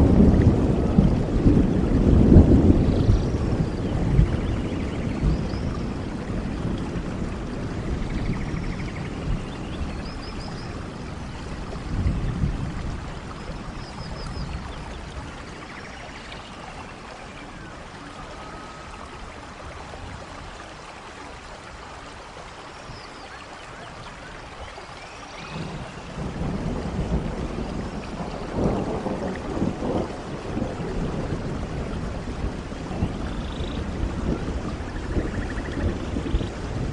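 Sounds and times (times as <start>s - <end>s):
thunder rumbling: 0.0s - 20.6s, 25.4s - 36.9s
steady rain: 0.0s - 36.9s.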